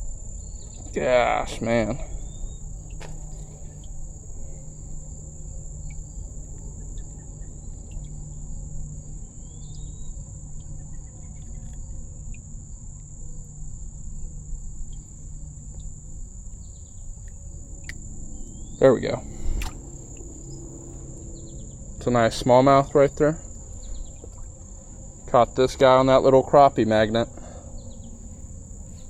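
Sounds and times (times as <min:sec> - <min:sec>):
insects droning: 0:00.0 - 0:29.0
low outdoor rumble: 0:00.0 - 0:29.0
faint clicks: 0:19.4 - 0:20.4.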